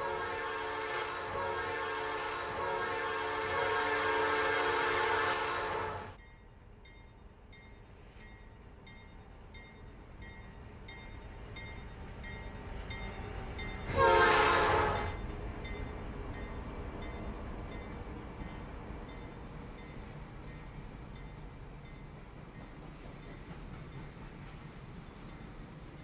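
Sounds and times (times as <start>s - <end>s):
locomotive air horn: 0.0s - 6.2s, 13.9s - 15.2s
train rumble: 0.0s - 26.0s.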